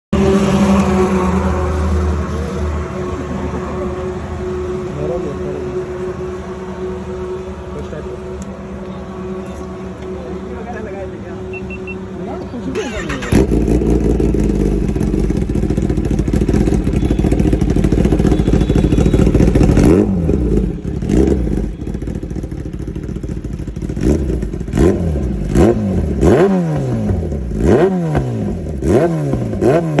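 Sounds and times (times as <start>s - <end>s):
motorcycle engine idling and revving: 0.2s - 30.0s.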